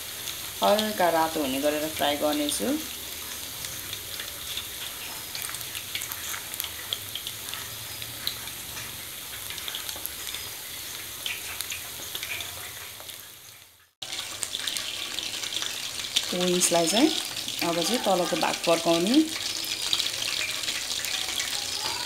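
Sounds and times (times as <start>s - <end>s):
chicken wings deep-frying in oil: 0.0s - 22.0s.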